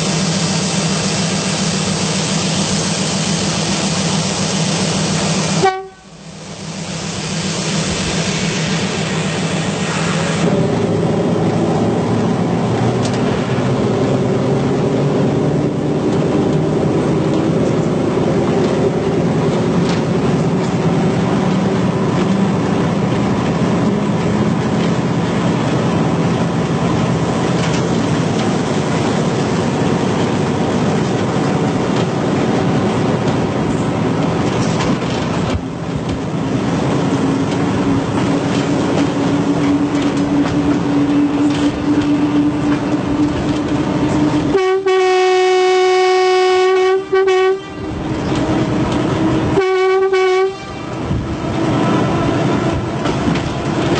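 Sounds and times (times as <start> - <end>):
train rumbling on track: 0.0 - 53.9
train horn blast: 5.5 - 6.2, 44.1 - 48.1, 49.5 - 51.1.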